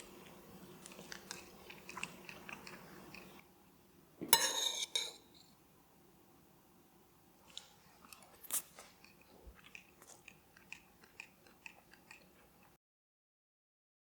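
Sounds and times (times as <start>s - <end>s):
person chewing crunchy food: 0.0s - 3.5s, 7.4s - 12.8s.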